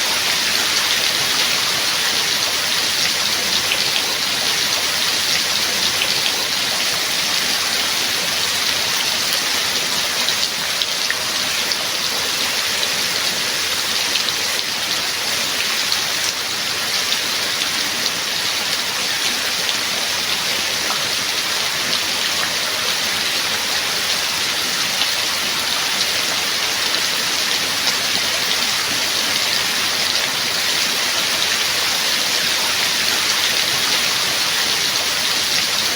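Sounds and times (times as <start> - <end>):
steady rain falling: 0.0 - 35.9.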